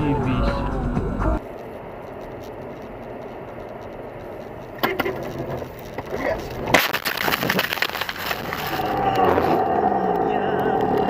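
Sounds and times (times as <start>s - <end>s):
crackling and crunching material: 1.4s - 11.0s
car crash: 4.7s - 9.7s.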